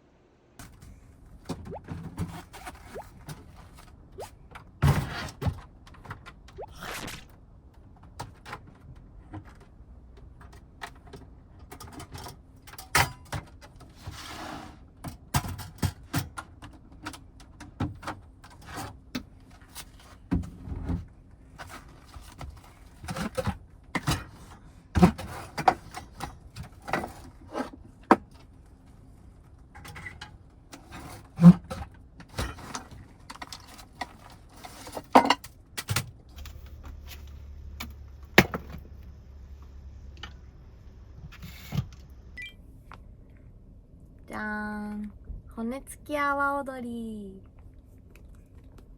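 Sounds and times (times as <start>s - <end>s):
faint steady hum: 32.8s - 48.9s.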